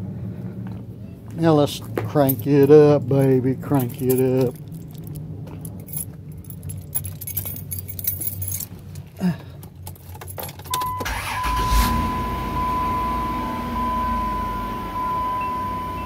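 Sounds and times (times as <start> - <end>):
car engine starting and idling: 1.5 - 16.0
keys jangling and clicking: 2.1 - 11.0
high warning chime: 10.7 - 16.0.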